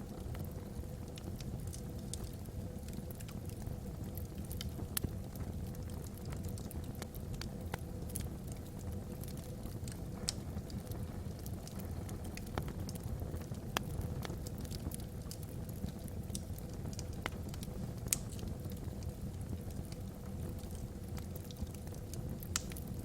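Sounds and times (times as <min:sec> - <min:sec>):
log fire crackling: 0:00.0 - 0:23.0
sharp fire pops: 0:17.2 - 0:18.7, 0:22.4 - 0:22.9.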